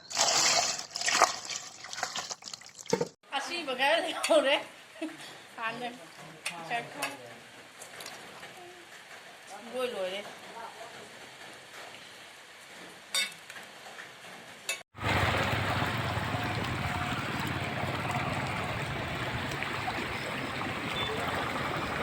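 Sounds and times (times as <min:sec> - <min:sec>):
flowing water rushing: 0:15.0 - 0:22.0.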